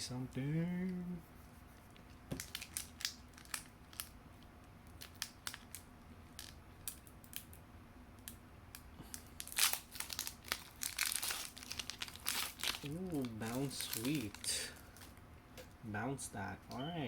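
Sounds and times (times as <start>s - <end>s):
foil pack crinkling: 2.3s - 4.2s, 4.9s - 7.6s, 9.0s - 15.2s
cards being handled: 12.2s - 15.2s.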